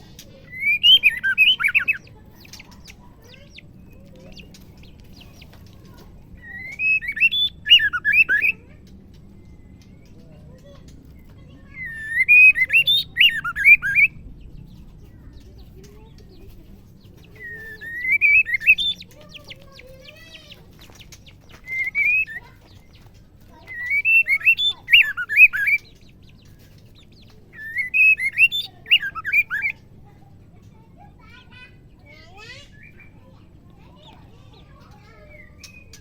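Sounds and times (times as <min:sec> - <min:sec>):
bird calling in whistled phrases: 0:00.0 - 0:05.4, 0:06.0 - 0:10.8, 0:11.6 - 0:14.3, 0:17.2 - 0:29.8.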